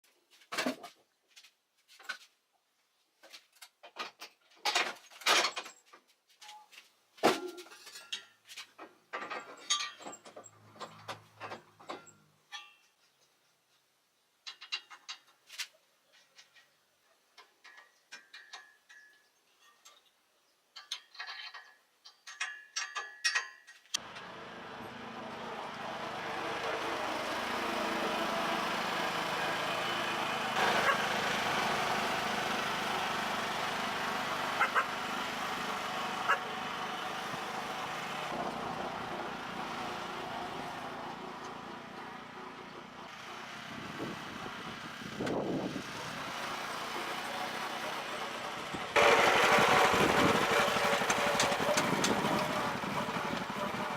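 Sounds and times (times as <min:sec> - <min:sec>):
garden tractor engine running: 0:24.0 - 0:53.9.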